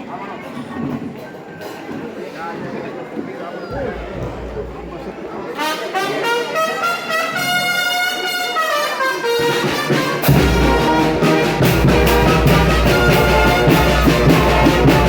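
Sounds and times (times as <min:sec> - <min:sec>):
drum beat: 0:03.7 - 0:05.6, 0:10.3 - 0:15.0
brass band playing: 0:03.7 - 0:15.0.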